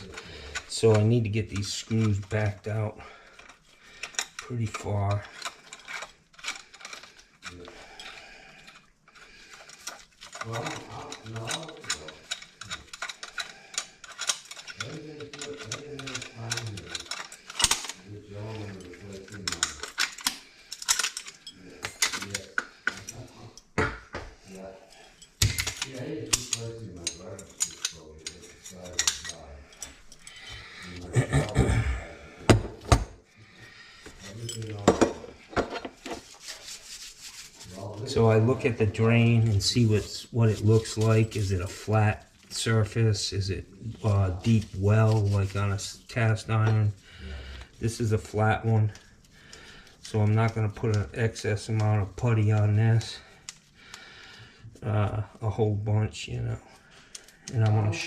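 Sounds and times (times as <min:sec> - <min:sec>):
metal hardware clinking and knocking: 0:09.7 - 0:24.4, 0:25.2 - 0:30.4, 0:32.5 - 0:33.2, 0:34.3 - 0:36.2.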